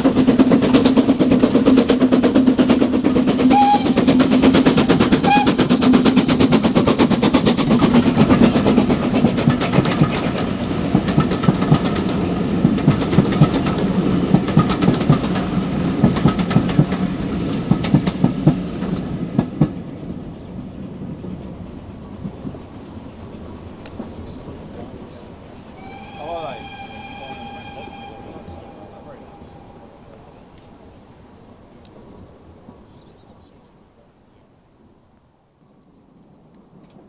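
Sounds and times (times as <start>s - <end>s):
train wheels clattering over rail joints: 0.0s - 25.7s
steady low drone: 25.8s - 31.4s.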